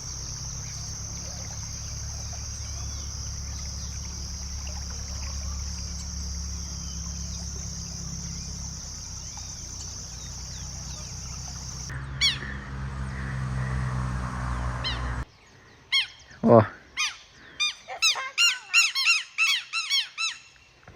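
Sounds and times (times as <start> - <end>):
high-pitched insect drone: 0.0 - 12.0
faint bird chirps: 0.0 - 12.5
low rumble: 0.0 - 15.2
loud bird call: 0.0 - 20.5.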